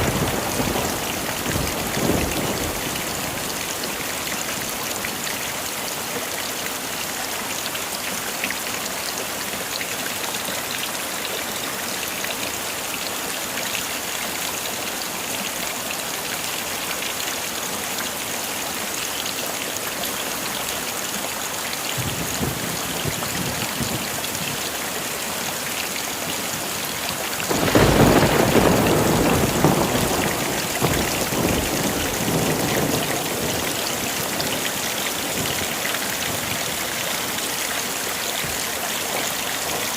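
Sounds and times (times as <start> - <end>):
heavy rain falling: 0.0 - 39.9
loud thunderclap: 22.0 - 24.5, 27.5 - 34.0
thunder rumbling: 22.0 - 24.6, 27.5 - 36.7.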